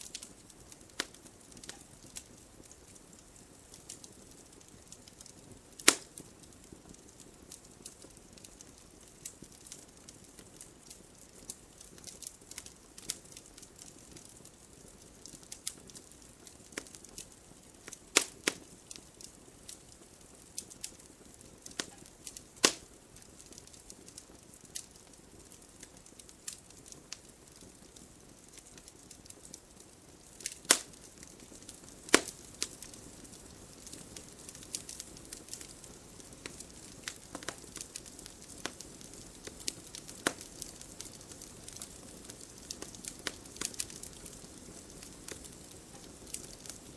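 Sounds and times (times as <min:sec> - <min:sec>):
campfire crackling and popping: 0:00.0 - 0:46.9
sharp fire snaps: 0:00.0 - 0:46.9
soft fire hiss: 0:00.0 - 0:46.9.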